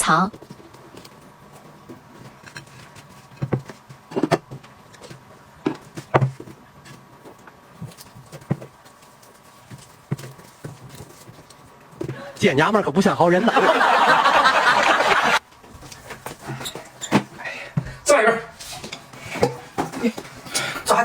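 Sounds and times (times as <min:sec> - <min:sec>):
objects knocking and clicking: 0:00.3 - 0:12.2, 0:18.8 - 0:20.8.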